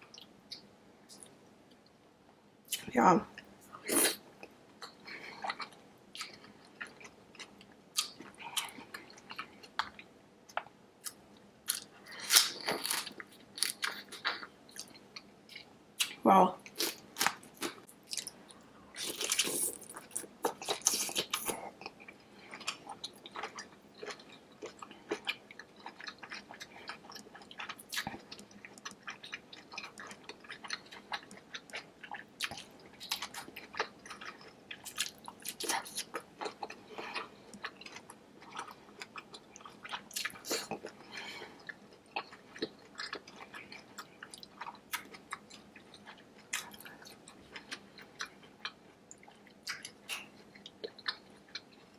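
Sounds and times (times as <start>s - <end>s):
chewing and biting food: 19.0s - 41.0s.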